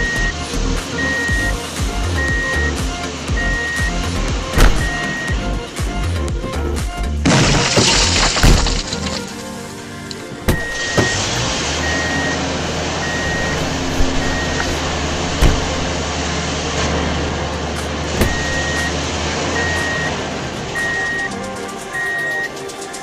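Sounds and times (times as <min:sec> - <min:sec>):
reversing alarm beeping: 0:00.0 - 0:05.6, 0:10.5 - 0:16.1, 0:18.2 - 0:20.2, 0:20.8 - 0:22.6
truck engine running: 0:00.0 - 0:23.0
sharp knocks: 0:18.2 - 0:18.6.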